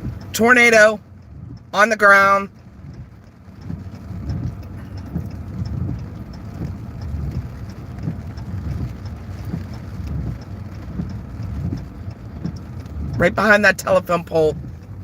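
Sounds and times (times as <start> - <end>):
car rumble from inside cabin: 0.0 - 15.0.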